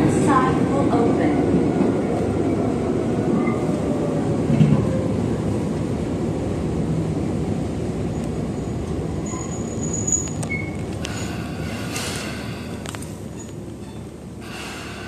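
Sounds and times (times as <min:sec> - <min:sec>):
train wheels rumbling: 0:00.0 - 0:15.0
brakes squealing: 0:08.6 - 0:14.9.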